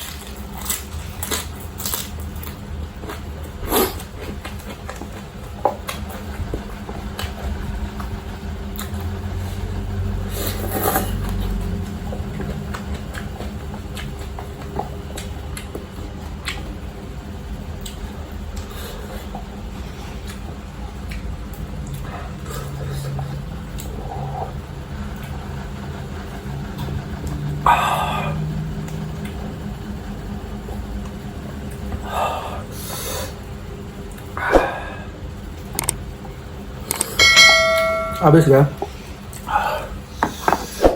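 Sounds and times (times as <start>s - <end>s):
chewing noodles: 0.0s - 16.9s
low hum: 33.4s - 40.1s.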